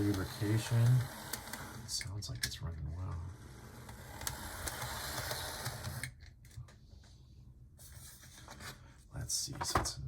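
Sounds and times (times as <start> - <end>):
model locomotive motor whirring: 0.0 - 2.0, 3.3 - 6.1.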